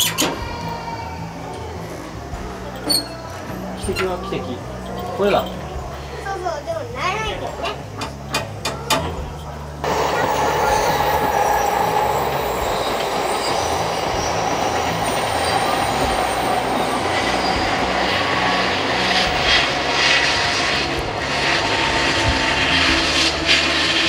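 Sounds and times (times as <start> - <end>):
high wheel tone: 7.8 - 24.0
train wheel clatter: 8.0 - 24.0
train rushing past: 9.8 - 24.0.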